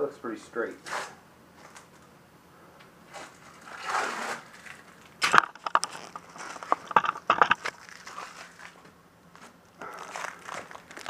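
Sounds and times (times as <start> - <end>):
parts clicking and clattering: 4.6 - 9.6
soft rustling: 5.8 - 11.0.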